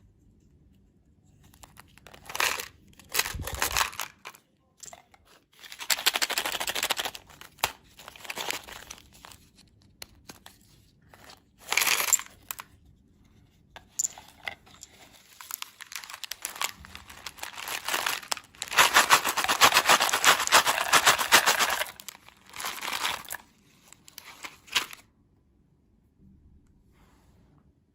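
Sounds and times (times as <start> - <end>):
candy wrapper crinkling and tearing: 1.6 - 4.4, 5.6 - 10.4, 11.2 - 12.7, 15.0 - 25.0.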